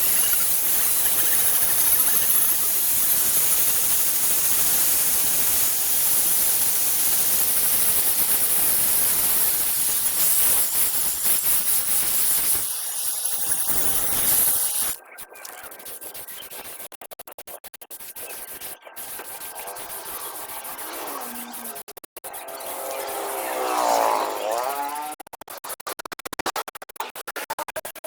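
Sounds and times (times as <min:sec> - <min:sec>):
loud steady hissing: 0:00.0 - 0:15.0.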